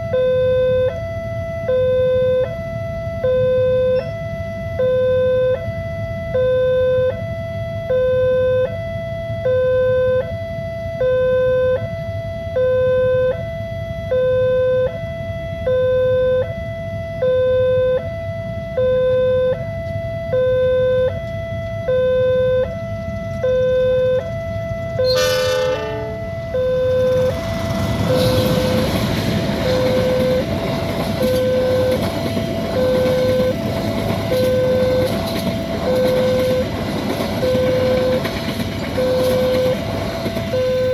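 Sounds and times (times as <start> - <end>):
two-tone crossing alarm: 0.0 - 40.9
train rumbling past: 24.2 - 40.9
short sound dropping in pitch: 25.0 - 29.0.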